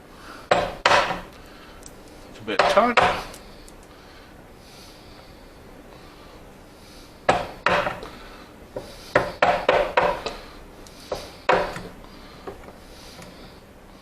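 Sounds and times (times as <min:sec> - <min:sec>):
chisel knocks into wood: 0:00.5 - 0:01.3, 0:09.2 - 0:10.4, 0:11.1 - 0:11.9.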